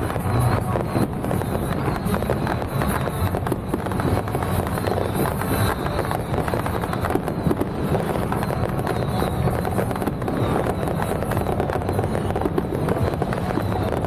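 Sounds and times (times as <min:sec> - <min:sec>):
firecrackers crackling: 0:00.0 - 0:14.0.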